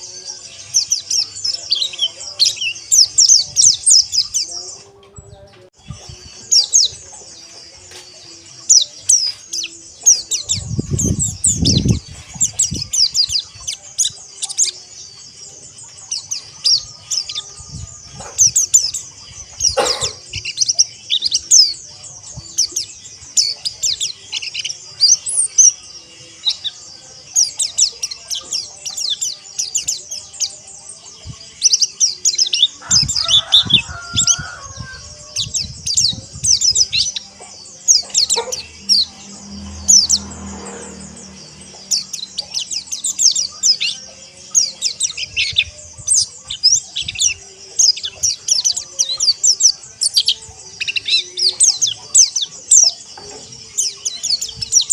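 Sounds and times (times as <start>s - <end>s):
flock of birds chattering: 0.0s - 54.9s
low rumbling noise: 34.2s - 47.2s.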